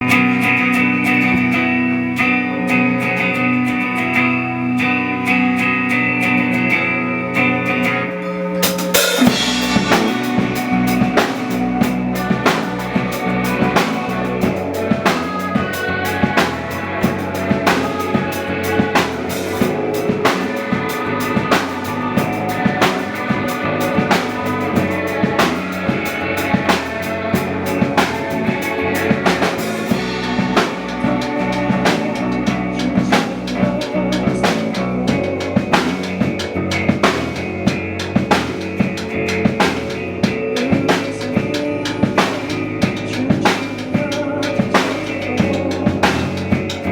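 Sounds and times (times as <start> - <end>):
electric guitars picking notes: 0.0 - 46.9
drum kit playing: 8.6 - 46.9.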